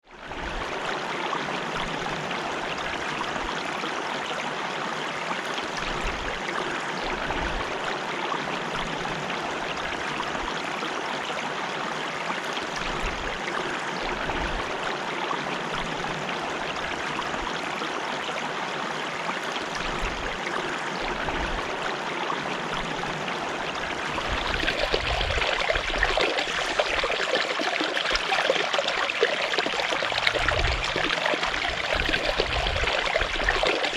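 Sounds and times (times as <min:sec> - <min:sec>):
running water: 0:00.0 - 0:33.9
water splashing: 0:19.6 - 0:33.9.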